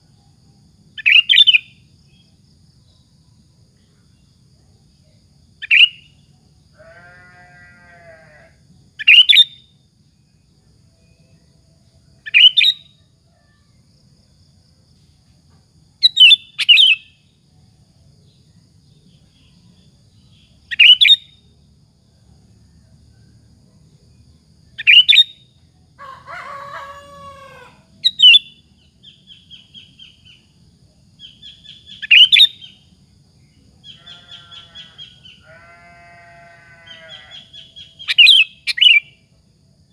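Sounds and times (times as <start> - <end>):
fainter lower animal calls: 6.8 - 8.5, 33.9 - 37.5.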